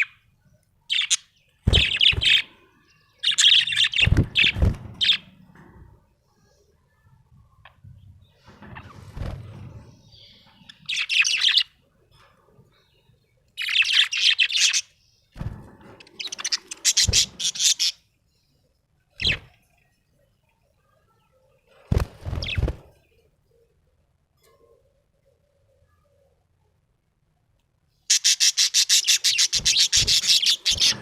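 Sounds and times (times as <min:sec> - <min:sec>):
budgerigar chirping: 0:28.1 - 0:31.0.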